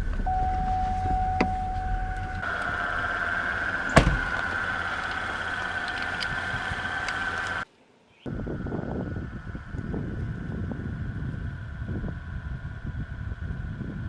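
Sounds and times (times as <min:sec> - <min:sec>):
car door shutting: 0:00.0 - 0:07.5.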